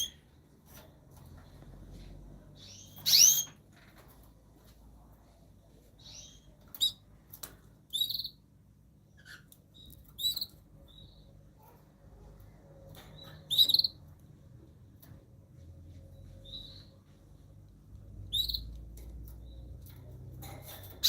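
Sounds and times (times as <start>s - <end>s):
small birds chirping: 0.0s - 0.4s, 1.4s - 3.6s, 5.8s - 14.5s, 15.9s - 21.0s.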